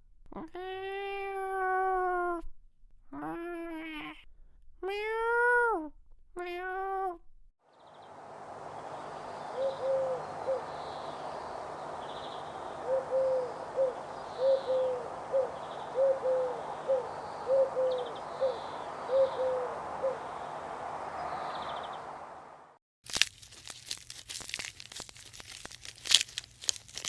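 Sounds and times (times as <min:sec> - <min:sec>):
steady background hiss: 0:07.8 - 0:22.7
bird cooing: 0:09.5 - 0:11.2, 0:12.8 - 0:20.3.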